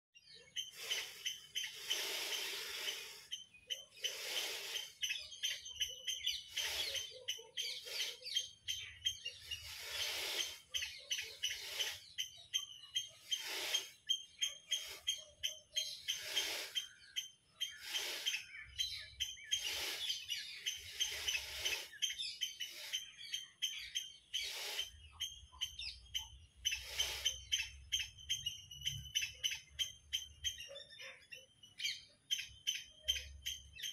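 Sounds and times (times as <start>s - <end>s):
birds chirping and calling: 0.2s - 33.9s
high thin chirring: 9.4s - 12.1s, 16.0s - 16.9s, 19.4s - 23.1s.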